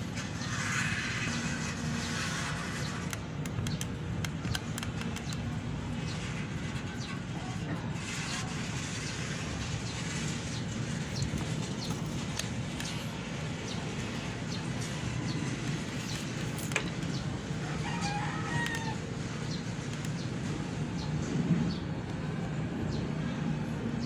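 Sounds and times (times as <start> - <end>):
rooster crowing: 17.6 - 19.1.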